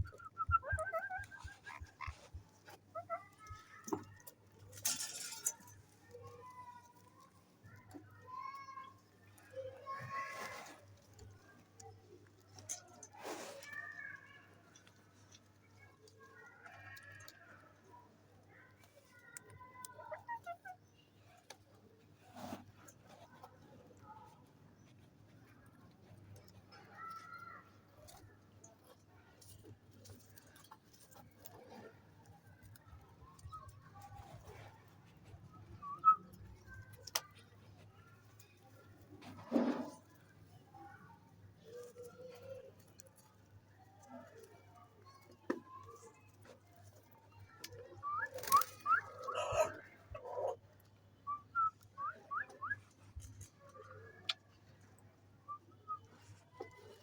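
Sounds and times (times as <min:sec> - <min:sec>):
parrot chirping softly: 0:00.0 - 0:03.8.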